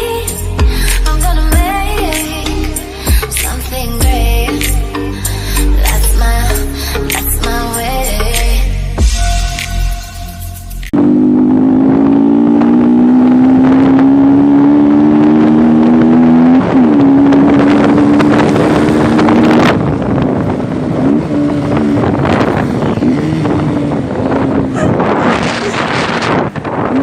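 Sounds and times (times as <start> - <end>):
motorcycle engine running hard: 11.0 - 27.0.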